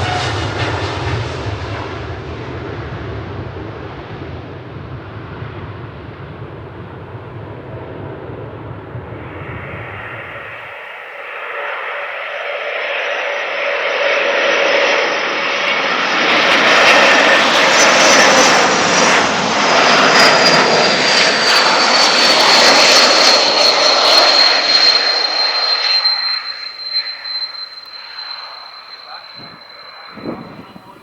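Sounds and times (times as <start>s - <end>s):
jet aircraft passing: 0.0s - 31.0s
high whine sliding down: 14.9s - 31.0s.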